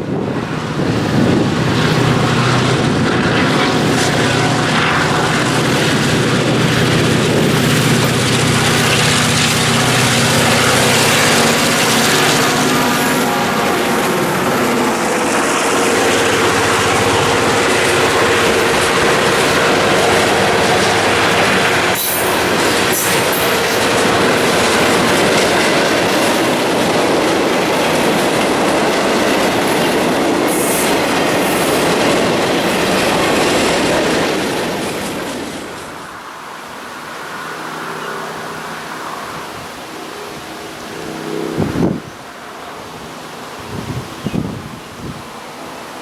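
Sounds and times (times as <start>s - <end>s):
clickety-clack over rail joints: 0.0s - 36.2s
train wheels on rails: 0.0s - 46.0s.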